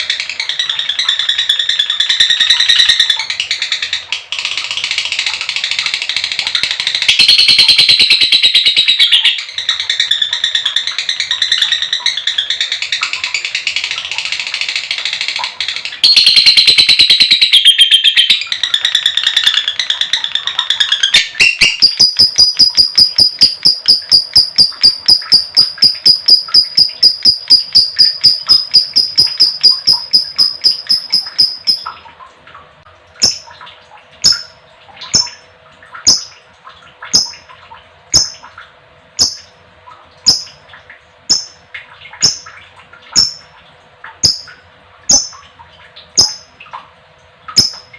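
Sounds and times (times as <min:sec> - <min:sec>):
lovebird chirping trill: 0:07.0 - 0:09.4, 0:16.0 - 0:19.7, 0:20.8 - 0:32.0.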